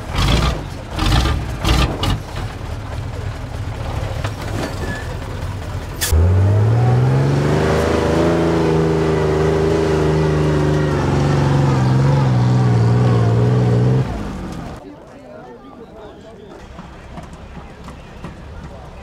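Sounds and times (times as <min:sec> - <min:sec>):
truck engine revving: 0:00.0 - 0:14.8.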